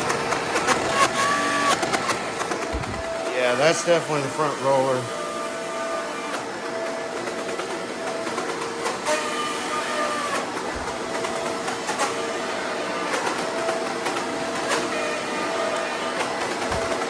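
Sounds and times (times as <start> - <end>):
roller brush grinding: 0.0 - 5.1
vacuum cleaner running: 0.0 - 17.0.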